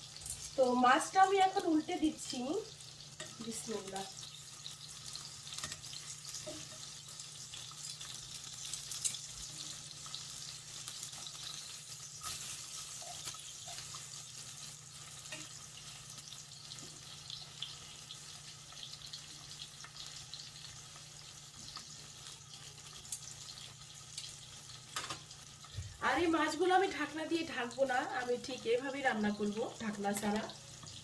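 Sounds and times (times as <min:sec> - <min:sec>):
fish sizzling in hot oil: 0:00.0 - 0:31.0.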